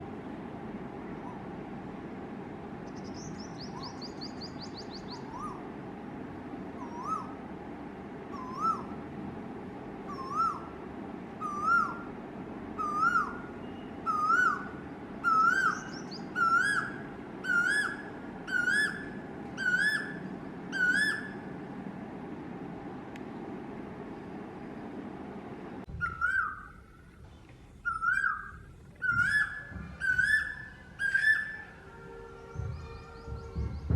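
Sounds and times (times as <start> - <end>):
koel two-part calls: 27.8 - 31.8.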